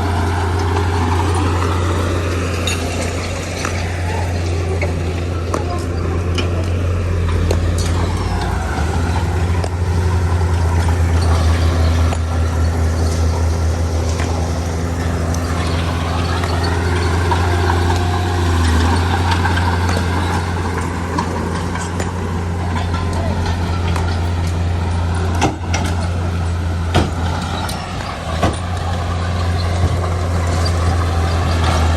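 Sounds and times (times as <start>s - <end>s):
heavy diesel engine droning: 0.0s - 31.9s.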